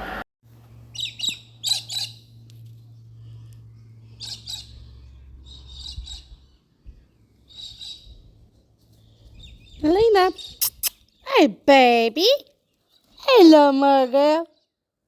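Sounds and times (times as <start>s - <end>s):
steady low hum: 0.0s - 8.6s
bird chirping: 0.9s - 2.4s, 3.8s - 11.3s.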